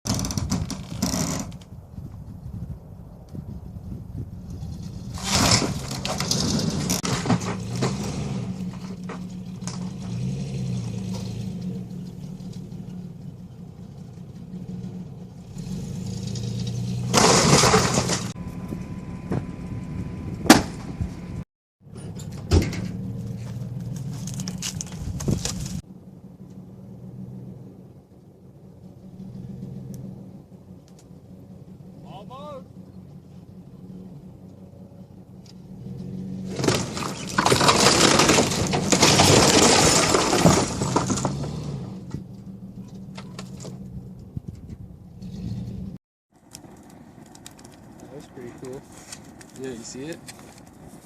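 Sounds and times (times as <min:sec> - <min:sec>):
sharp wood cracks: 0:00.1 - 0:01.7, 0:16.3 - 0:18.4, 0:22.8 - 0:25.8, 0:36.5 - 0:41.7, 0:46.3 - 0:51.0
truck engine revving: 0:04.5 - 0:21.5, 0:22.4 - 0:46.0
structure crashing down: 0:05.1 - 0:11.1, 0:16.3 - 0:18.5, 0:36.4 - 0:42.2.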